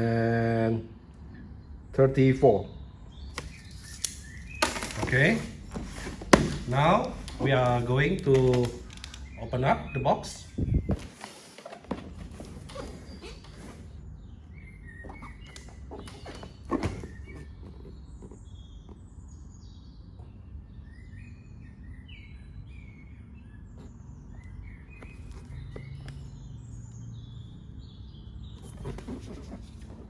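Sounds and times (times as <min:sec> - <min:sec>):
small birds chirping: 0:01.3 - 0:30.0
cardboard box being handled: 0:03.4 - 0:09.0, 0:10.8 - 0:14.0, 0:15.1 - 0:18.8, 0:25.0 - 0:26.5, 0:28.6 - 0:30.0.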